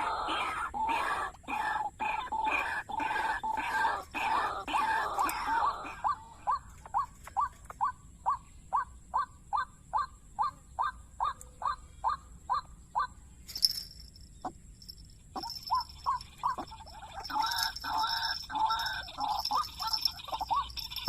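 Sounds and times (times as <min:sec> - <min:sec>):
waterhen calling: 0:00.0 - 0:13.1, 0:15.4 - 0:21.0.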